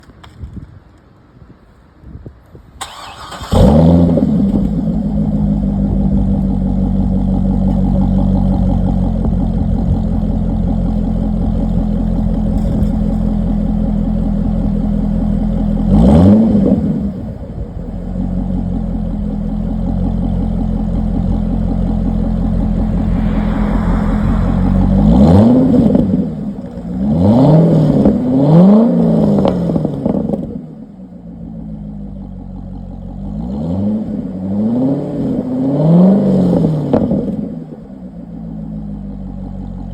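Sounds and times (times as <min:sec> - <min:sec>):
car engine starting: 0:02.8 - 0:39.9
car engine idling: 0:04.8 - 0:15.9, 0:17.4 - 0:27.0
car engine revving: 0:20.5 - 0:30.6.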